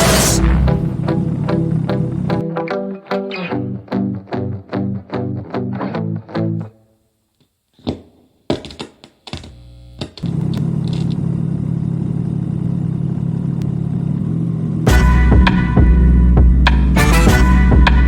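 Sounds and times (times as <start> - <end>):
music with heavy bass: 0.0 - 2.4, 14.9 - 18.0.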